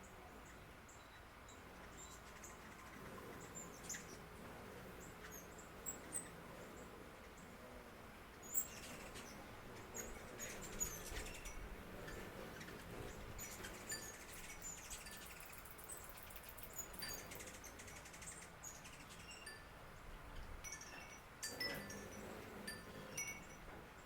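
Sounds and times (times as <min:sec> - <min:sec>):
faint steady hiss: 0:00.0 - 0:24.0
high tinkling and chirping notes: 0:10.0 - 0:19.8, 0:20.6 - 0:23.7.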